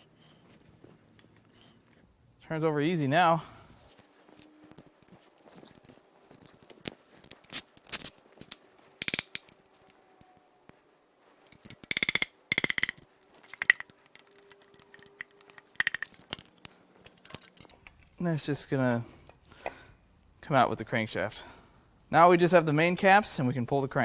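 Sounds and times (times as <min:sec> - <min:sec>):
ratchet wrench clicking: 0:07.4 - 0:09.6, 0:11.5 - 0:16.4
metal tools clinking: 0:11.5 - 0:18.1.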